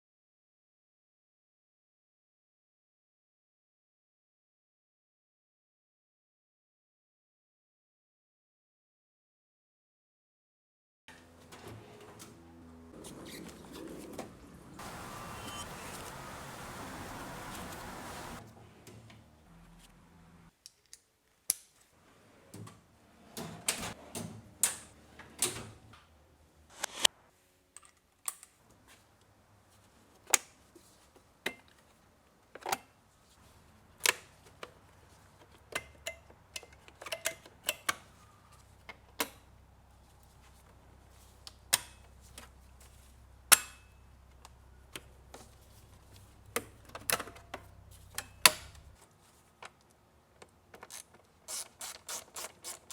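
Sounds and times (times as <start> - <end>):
clicks and knocks of tools: 35.4 - 38.1.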